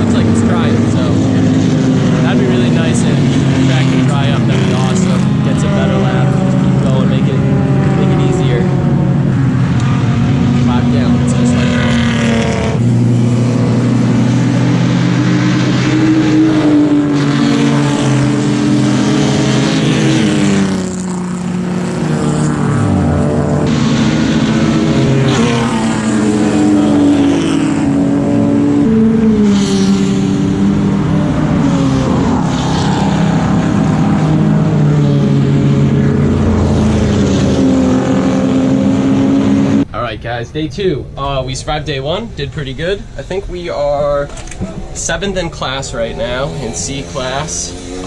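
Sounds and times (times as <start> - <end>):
race car engine revving: 0.0 - 40.2, 41.0 - 48.0.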